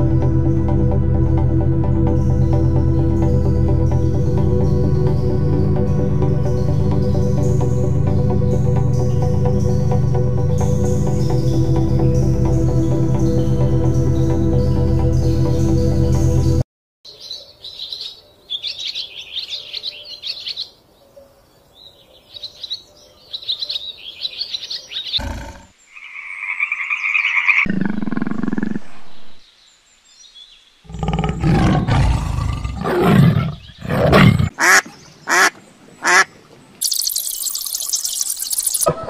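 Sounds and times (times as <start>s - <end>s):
high chirping bird calls: 17.1s - 20.8s, 21.8s - 25.5s, 33.0s - 39.0s
steady high animal call: 24.5s - 29.2s
low animal call: 25.2s - 25.8s
loud harsh animal calls: 25.2s - 29.1s, 30.9s - 36.3s.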